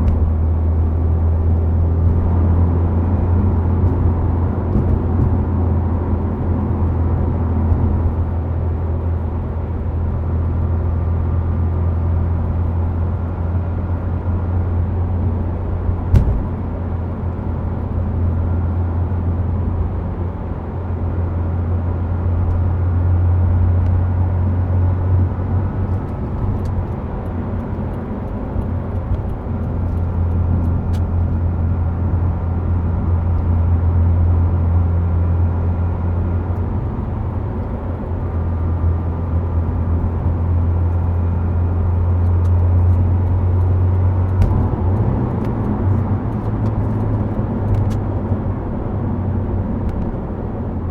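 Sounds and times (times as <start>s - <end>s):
car engine and exhaust drone: 0.0s - 50.9s
tyre and road noise: 0.0s - 50.9s
sharp knock: 16.1s - 16.6s.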